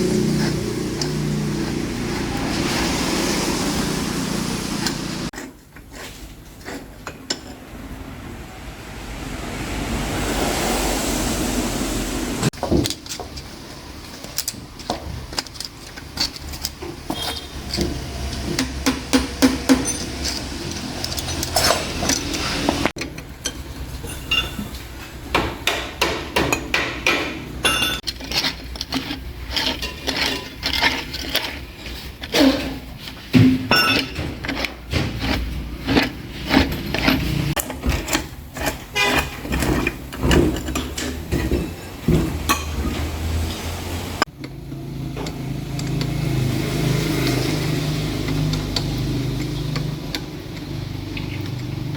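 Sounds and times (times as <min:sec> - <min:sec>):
metal tools clinking and clanking: 0:12.6 - 0:25.2, 0:27.6 - 0:32.9, 0:33.6 - 0:43.3.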